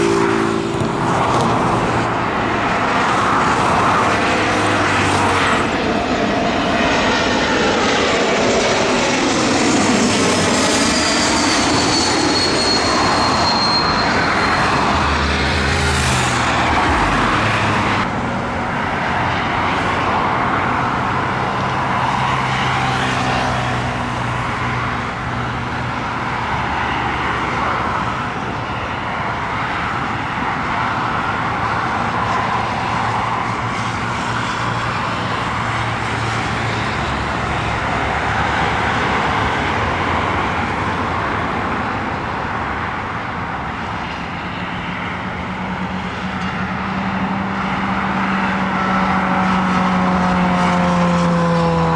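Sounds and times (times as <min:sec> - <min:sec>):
jet engine rushing: 0:00.0 - 0:51.9
low hum: 0:05.8 - 0:18.2.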